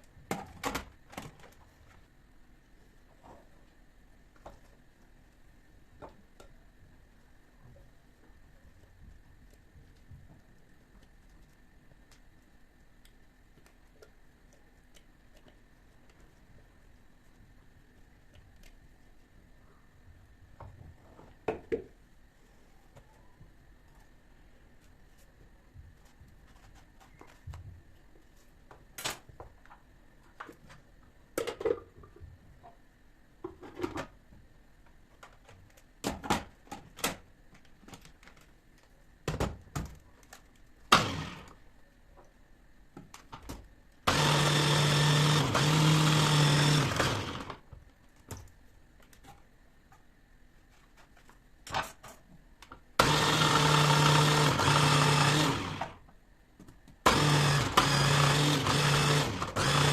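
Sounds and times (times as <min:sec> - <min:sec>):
kitchen appliance motor running: 0:41.0 - 0:41.5, 0:44.1 - 0:47.6, 0:53.0 - 0:56.0, 0:57.1 - 0:59.9.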